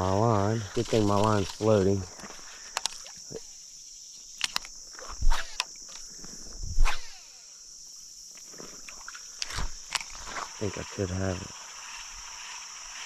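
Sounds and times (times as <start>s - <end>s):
insects chirring: 0.0s - 13.0s
sharp clicks: 0.8s - 1.7s, 2.6s - 3.2s, 4.3s - 7.2s, 8.3s - 10.3s.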